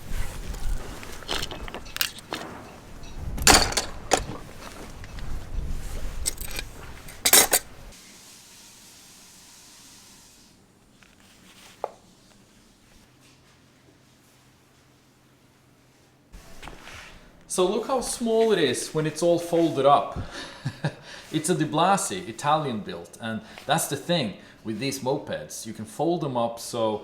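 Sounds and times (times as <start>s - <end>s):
metal tools clinking: 0.3s - 7.9s
metal clatters: 0.8s - 7.9s.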